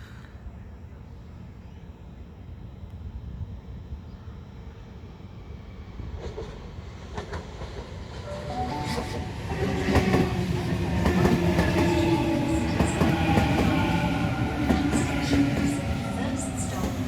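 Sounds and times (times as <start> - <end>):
electric train passing: 2.4 - 17.0.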